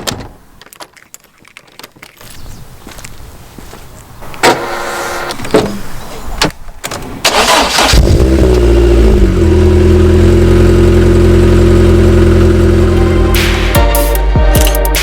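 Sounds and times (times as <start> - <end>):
engine cranking and starting: 6.9 - 8.9
engine revving and idling: 7.4 - 13.7.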